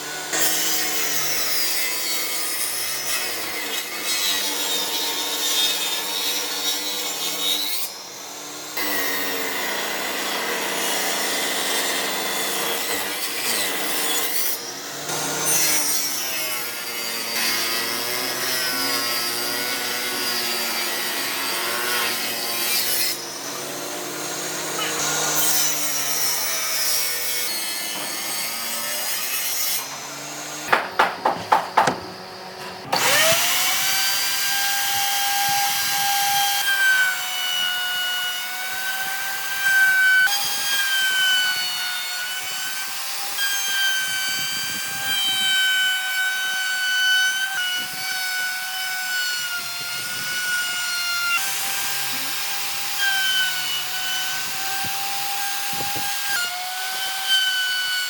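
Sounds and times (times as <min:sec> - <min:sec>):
power tool motor whining: 0:29.8 - 0:36.6
quick sharp knocks: 0:30.7 - 0:32.1.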